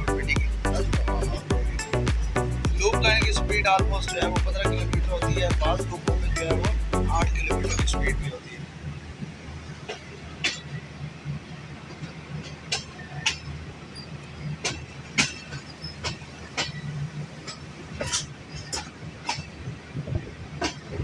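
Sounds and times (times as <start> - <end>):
train wheels clacking over rail joints: 14.6 - 19.6.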